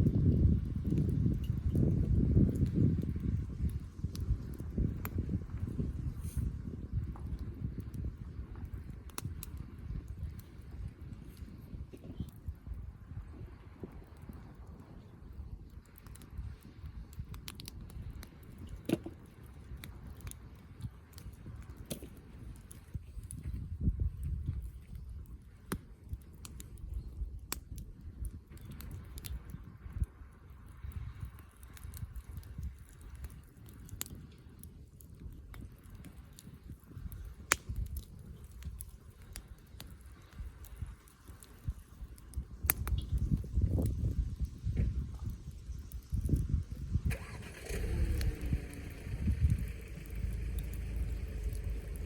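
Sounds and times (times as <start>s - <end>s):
campfire crackling: 0.0s - 52.0s
low rumble: 43.1s - 52.0s.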